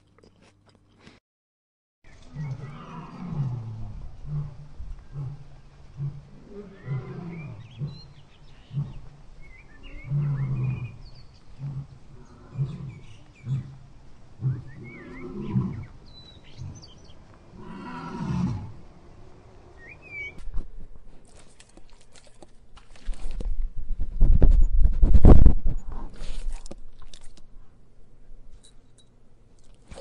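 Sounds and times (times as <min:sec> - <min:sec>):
birds chirping: 0:02.1 - 0:03.5, 0:04.2 - 0:20.4.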